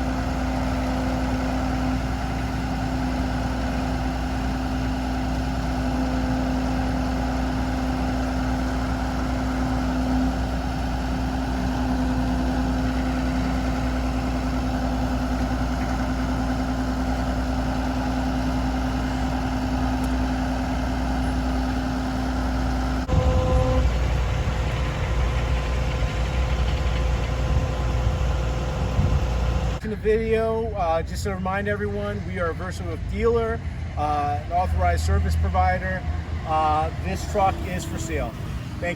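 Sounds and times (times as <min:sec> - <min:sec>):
diesel truck engine rumble: 0:00.0 - 0:38.9
steady hum: 0:22.8 - 0:29.9.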